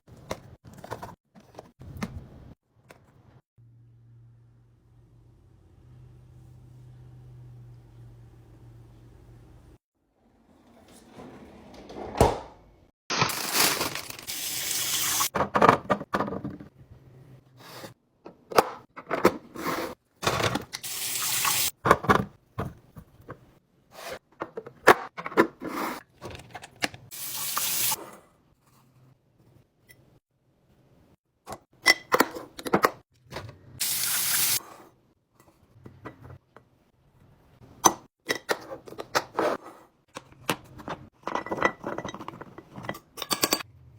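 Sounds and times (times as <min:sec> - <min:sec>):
knocks and clatters of items: 0:00.1 - 0:02.2, 0:15.3 - 0:16.8.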